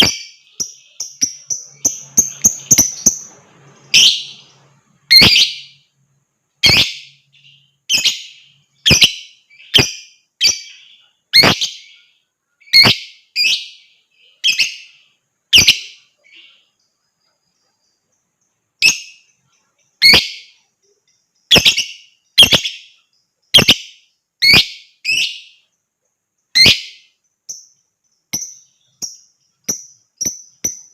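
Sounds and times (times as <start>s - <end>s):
lovebird shrill calls: 0.0s - 5.8s, 6.6s - 12.0s, 12.6s - 14.9s, 15.5s - 16.0s, 20.0s - 20.6s, 21.5s - 25.6s, 26.5s - 27.1s.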